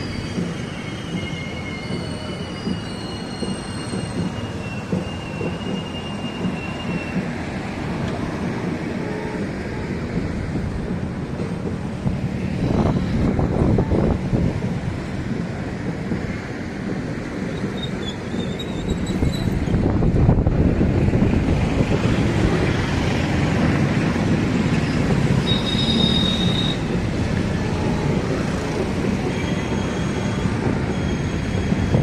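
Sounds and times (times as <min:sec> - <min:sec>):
high wheel squeal: 0:00.0 - 0:07.4, 0:17.3 - 0:20.2, 0:24.5 - 0:32.0
train coaches rumbling past: 0:00.0 - 0:32.0.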